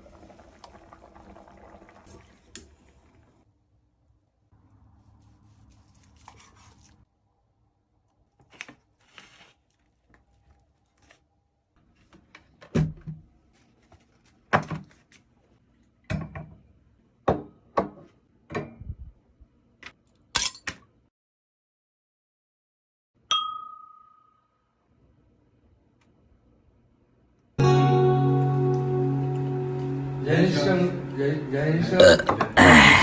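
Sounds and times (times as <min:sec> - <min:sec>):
rustling: 0:08.3 - 0:12.5.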